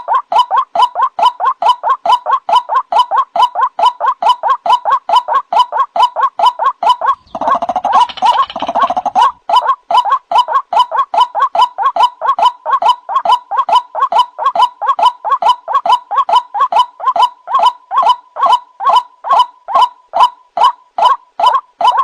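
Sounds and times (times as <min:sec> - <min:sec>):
bird rough calls: 0:07.0 - 0:09.6.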